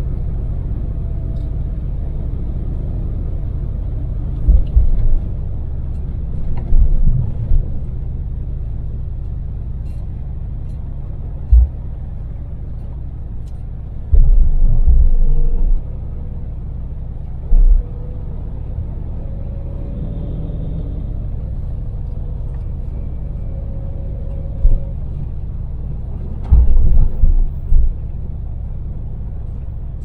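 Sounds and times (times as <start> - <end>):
vehicle engine and road rumble: 0.0 - 30.0
loud low thumps: 4.5 - 5.2, 14.1 - 15.9, 26.4 - 28.0.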